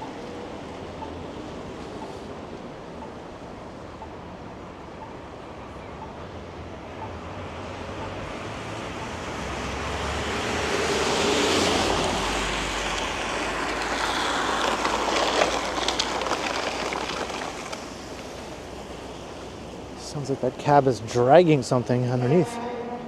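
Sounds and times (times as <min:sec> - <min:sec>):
car passing: 0:05.4 - 0:23.0
scraping rattle under car: 0:12.8 - 0:18.9.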